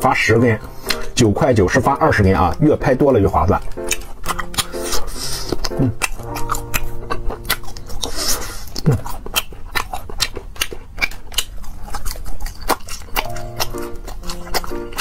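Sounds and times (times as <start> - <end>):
soft background music: 0.0 - 8.7, 12.4 - 15.0
chewing clicks and mouth smacks: 0.7 - 1.2, 3.4 - 15.0.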